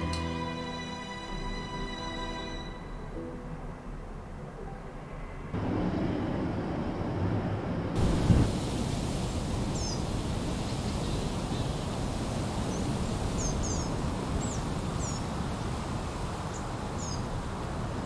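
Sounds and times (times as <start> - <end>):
low rumbling noise: 2.7 - 18.0
small birds chirping: 9.3 - 18.0.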